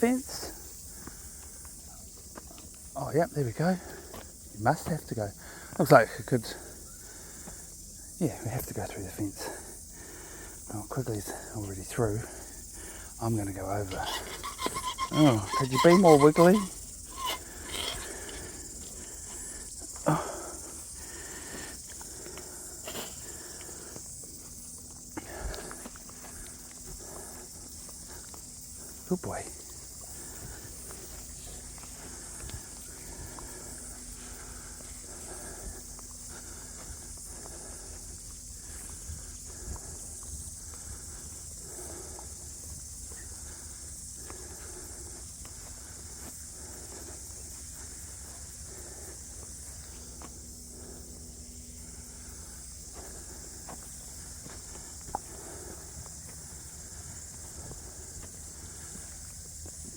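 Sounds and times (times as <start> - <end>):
high-pitched insect chorus: 0.0 - 59.9
footsteps on bush track: 0.5 - 59.9
footsteps: 13.9 - 19.5, 52.9 - 59.9.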